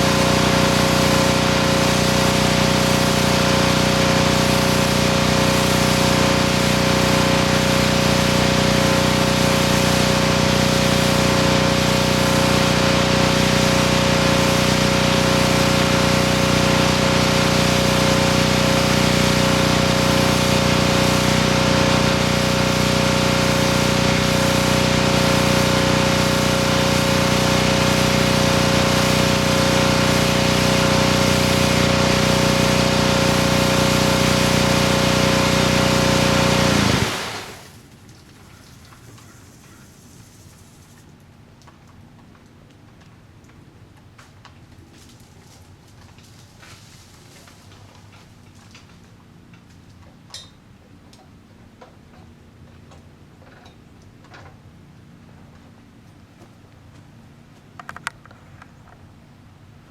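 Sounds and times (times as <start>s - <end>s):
high-pressure water spray hissing: 0.0s - 37.8s
pressure washer motor humming: 0.0s - 37.8s.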